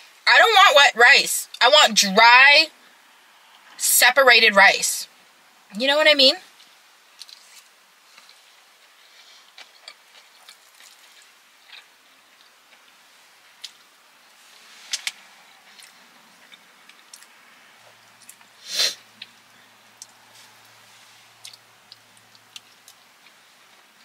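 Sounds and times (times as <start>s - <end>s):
close chewing with mouth clicks: 6.5s - 13.9s, 14.9s - 24.0s.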